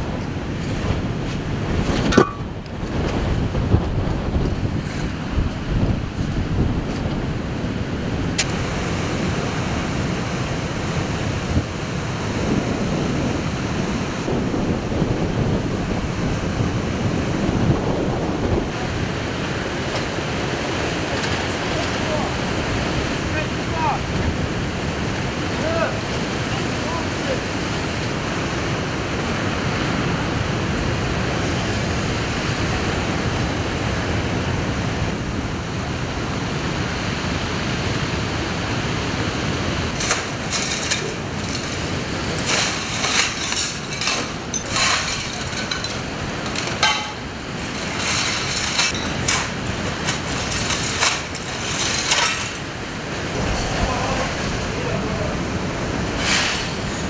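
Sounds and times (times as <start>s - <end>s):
wind rushing: 0.0s - 19.4s, 39.9s - 57.0s
heavy sea surf: 0.0s - 57.0s.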